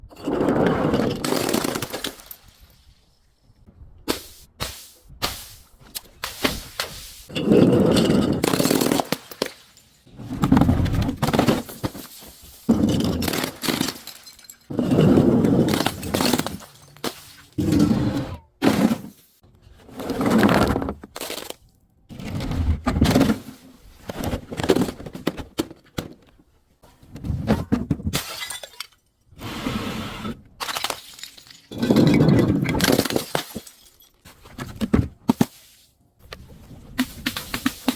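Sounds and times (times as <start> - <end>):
objects crushed and breaking: 0.3 - 2.9, 7.3 - 17.9, 20.1 - 23.5, 30.6 - 35.5
glass shattering: 12.9 - 14.8, 28.1 - 29.1, 30.6 - 32.2, 32.8 - 34.2.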